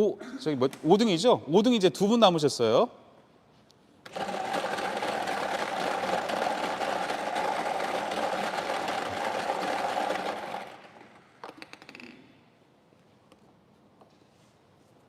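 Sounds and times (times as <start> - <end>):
lottery balls rattling in machine: 4.1 - 11.3
ball clicks: 7.0 - 12.3.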